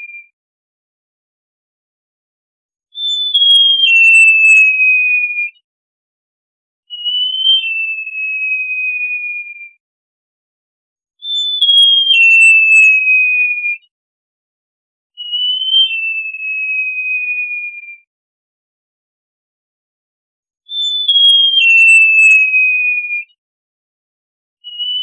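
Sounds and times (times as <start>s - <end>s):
bird whistling: 3.0s - 5.4s, 6.9s - 9.4s, 11.2s - 13.8s, 15.2s - 17.9s, 20.7s - 23.3s, 24.6s - 25.0s.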